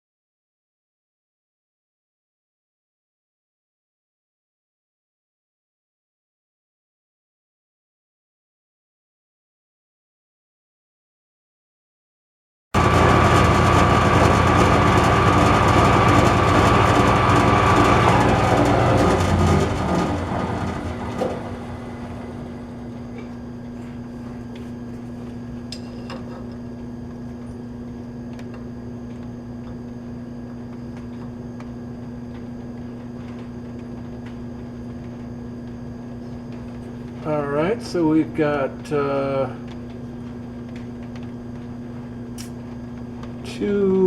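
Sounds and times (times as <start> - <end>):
metal lathe running: 12.8 - 23.4
steady low hum: 12.8 - 44.0.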